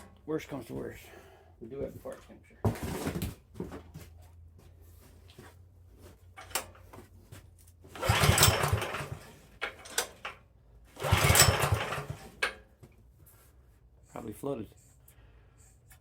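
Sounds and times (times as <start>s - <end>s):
pull-start recoil rope cranking: 7.9s - 10.2s, 11.0s - 12.5s.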